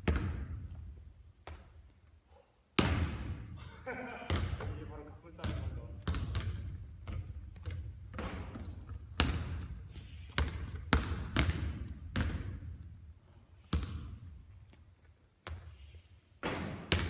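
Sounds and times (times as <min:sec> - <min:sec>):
basketball bouncing on hard court: 0:00.0 - 0:01.9, 0:02.8 - 0:03.5, 0:04.2 - 0:13.0, 0:13.7 - 0:14.8, 0:15.4 - 0:15.7, 0:16.4 - 0:17.0.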